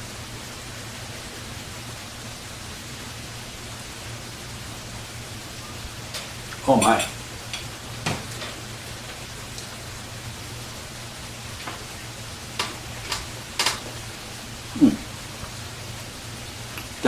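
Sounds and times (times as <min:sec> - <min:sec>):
background hiss: 0:00.0 - 0:17.0
light sharp eating clicks: 0:16.6 - 0:17.0.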